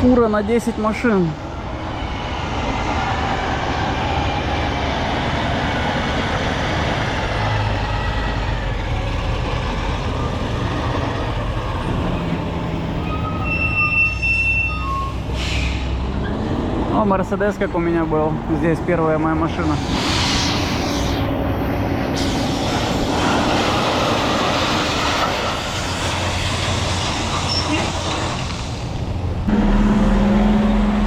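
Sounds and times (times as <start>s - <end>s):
truck driving and rattling: 0.0s - 31.0s
high squeal: 13.0s - 16.6s, 22.2s - 28.4s.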